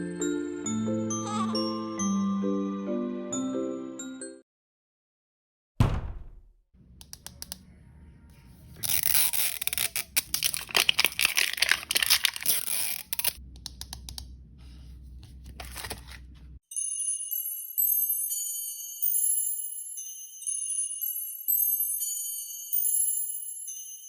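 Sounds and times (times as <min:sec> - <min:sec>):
sharp hit: 0:05.8 - 0:06.5
plastic bag tearing and crinkling: 0:08.8 - 0:13.4.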